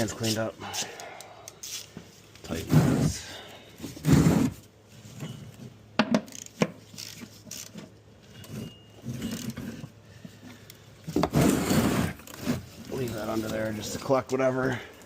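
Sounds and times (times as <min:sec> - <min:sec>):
loud scraping rub: 0:02.5 - 0:04.6, 0:11.2 - 0:12.8.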